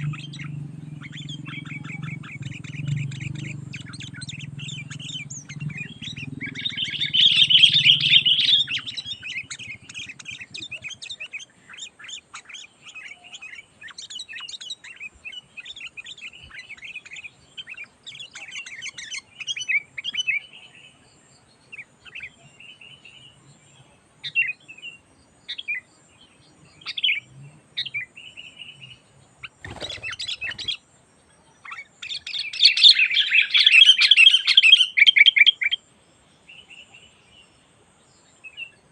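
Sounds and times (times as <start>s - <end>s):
birds chattering and calling: 0.0s - 38.9s.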